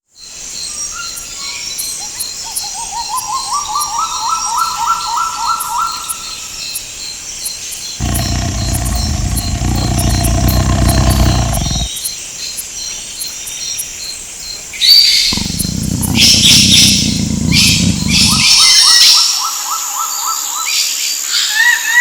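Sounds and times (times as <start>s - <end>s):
insects chirping: 0.5s - 18.7s.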